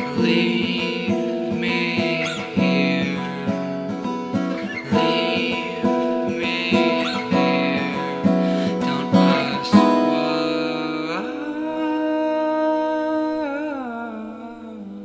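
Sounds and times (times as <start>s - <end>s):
acoustic guitar chords ringing: 0.0s - 15.0s.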